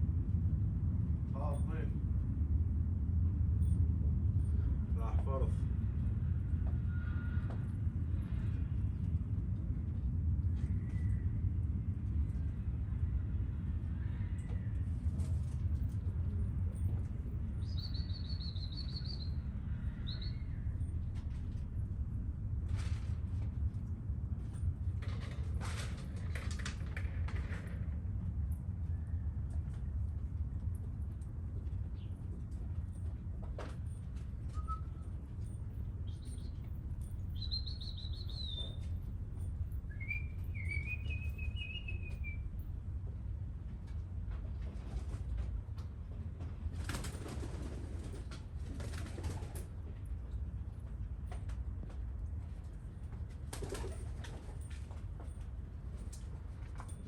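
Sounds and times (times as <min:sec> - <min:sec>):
steady low rumble: 0:00.0 - 0:57.0
songbird chirping: 0:17.4 - 0:21.0, 0:34.5 - 0:42.9.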